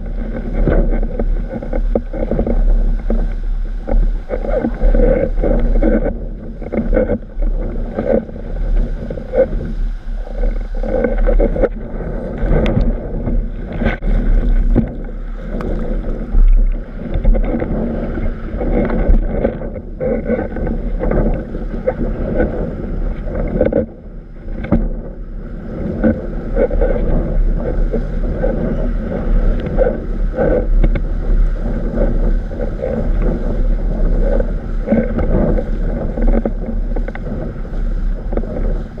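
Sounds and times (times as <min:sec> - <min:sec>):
water slapping against board: 0:00.0 - 0:25.1
deep rumble: 0:00.0 - 0:39.0
wind buffeting microphone: 0:00.0 - 0:39.0.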